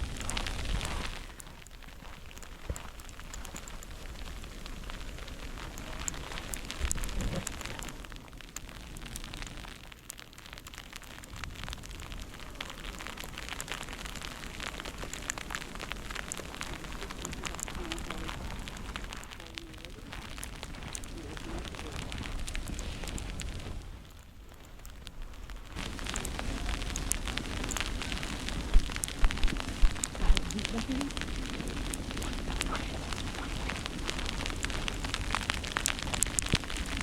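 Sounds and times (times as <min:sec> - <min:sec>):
crackling hiss of snowstorm: 0:00.0 - 0:37.0
low rumble: 0:11.4 - 0:37.0.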